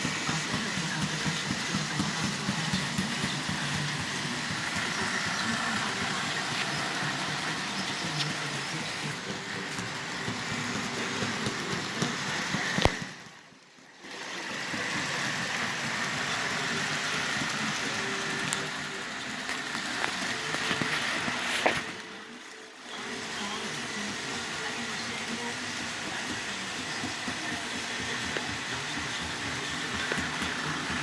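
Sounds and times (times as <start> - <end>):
electric motor hum: 0.0 - 13.2, 23.0 - 31.0
wheels rattling on track: 0.0 - 13.3, 23.8 - 31.0.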